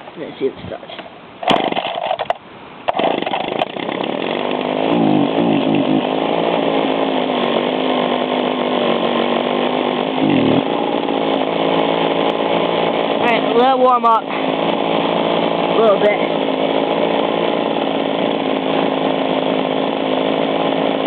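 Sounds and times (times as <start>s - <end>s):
pull cord starting: 1.4s - 6.1s
two-stroke engine running fast: 1.4s - 21.0s.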